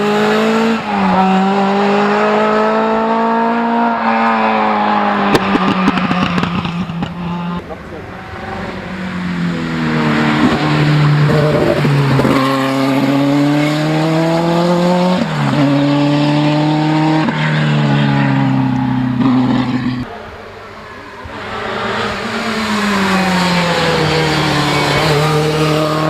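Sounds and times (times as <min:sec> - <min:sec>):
rally car engine accelerating: 0:00.0 - 0:26.0.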